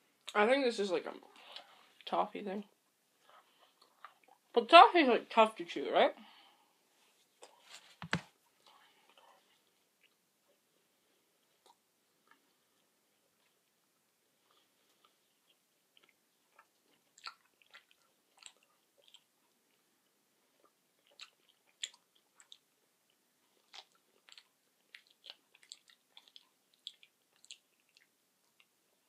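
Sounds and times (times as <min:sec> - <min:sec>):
faint chewing: 0:01.2 - 0:02.2, 0:03.1 - 0:04.6, 0:06.2 - 0:29.0
wet mouth clicks: 0:16.0 - 0:19.3, 0:21.0 - 0:22.7, 0:23.7 - 0:28.7.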